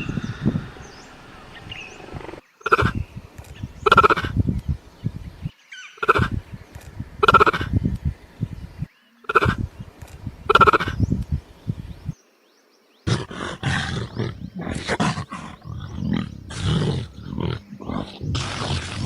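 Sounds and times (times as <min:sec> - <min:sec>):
harsh rasping animal calls: 0:00.0 - 0:04.5, 0:06.0 - 0:06.5, 0:07.2 - 0:07.8, 0:09.3 - 0:11.4, 0:13.1 - 0:19.0.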